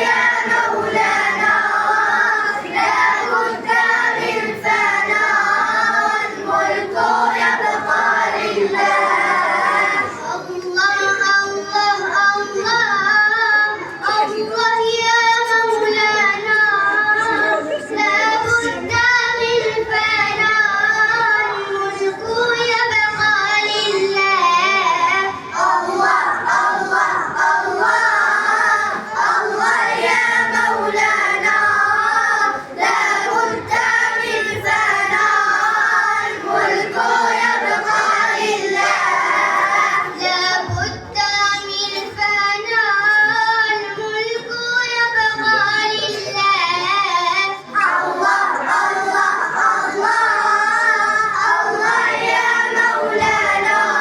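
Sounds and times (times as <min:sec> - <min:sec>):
child singing: 0:00.0 - 0:54.0.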